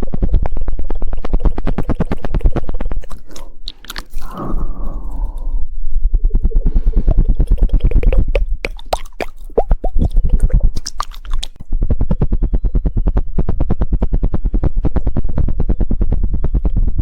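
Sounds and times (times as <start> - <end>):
wet mouth clicks and pops: 1.1 - 5.6, 7.1 - 11.6
tongue clicking close to microphone: 1.2 - 5.6, 7.0 - 11.6.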